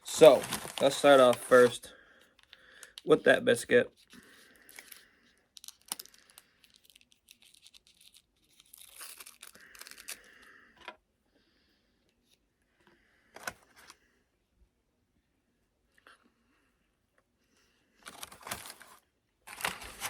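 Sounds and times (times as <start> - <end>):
biscuit tearing and crinkling: 0.0 - 1.7, 4.1 - 10.5, 18.0 - 20.0.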